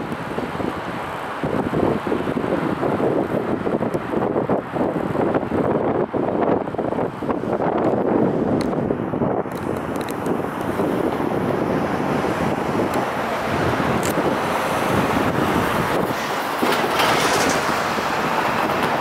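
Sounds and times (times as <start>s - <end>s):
wind noise on microphone: 0.0s - 19.0s
train wheels clacking on rails: 16.1s - 17.9s.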